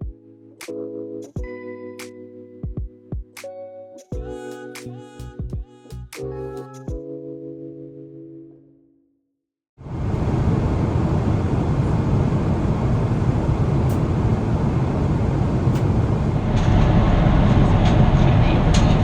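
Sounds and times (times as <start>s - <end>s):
airliner cabin noise: 9.9s - 19.0s.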